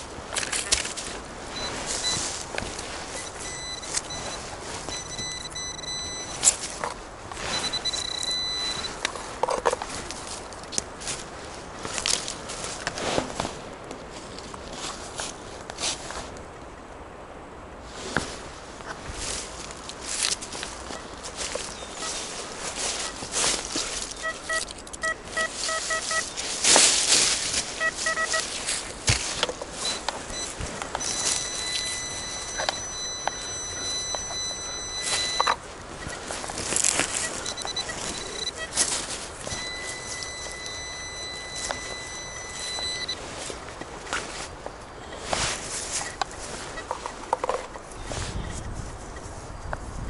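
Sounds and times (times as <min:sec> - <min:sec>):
footsteps in leaf litter: 0:00.0 - 0:16.3, 0:17.9 - 0:47.2
rustling of leaves: 0:00.0 - 0:50.0
metal detector tone: 0:00.8 - 0:09.8, 0:20.9 - 0:26.5, 0:27.6 - 0:28.6, 0:29.7 - 0:43.5.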